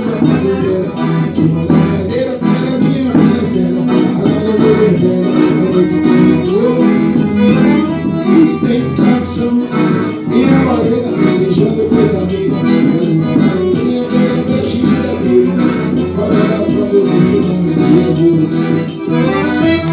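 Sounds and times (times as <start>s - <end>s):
accordion melody: 0.0s - 19.9s
steady percussion beat: 0.0s - 19.9s.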